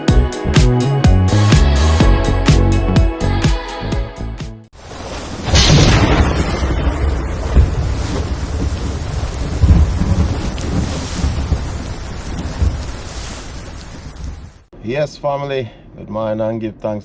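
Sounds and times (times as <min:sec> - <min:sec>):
rain falling: 0:04.7 - 0:14.7
low rolls of thunder: 0:04.8 - 0:14.7.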